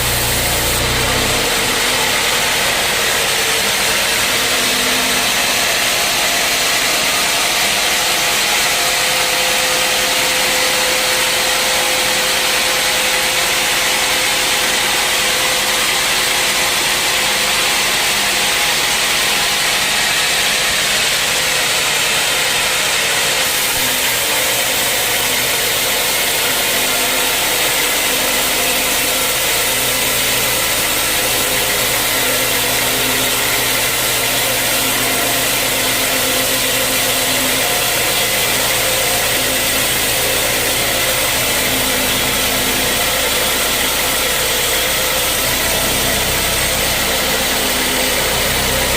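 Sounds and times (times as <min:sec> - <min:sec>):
machine hum: 0:00.0 - 0:48.9
sawmill saw cutting log: 0:00.0 - 0:48.9.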